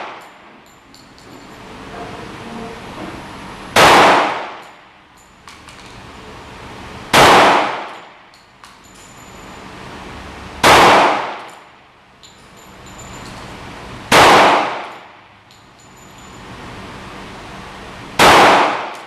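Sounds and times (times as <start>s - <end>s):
pistol shots ringing out: 3.7s - 4.7s, 7.1s - 8.1s, 10.6s - 11.6s, 14.1s - 15.1s, 18.2s - 19.0s.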